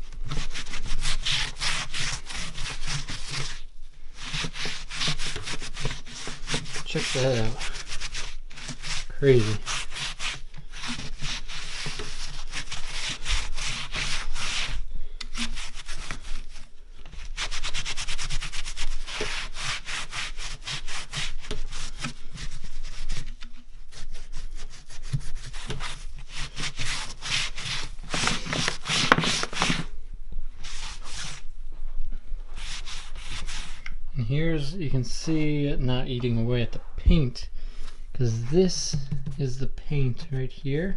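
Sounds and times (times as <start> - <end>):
scrubbing on rusty metal: 4.2 - 16.6.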